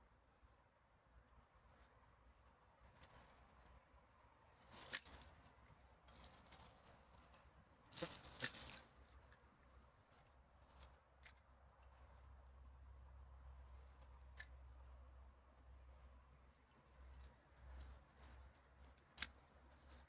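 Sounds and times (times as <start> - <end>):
dry litter rustling and crackling: 4.6 - 9.4.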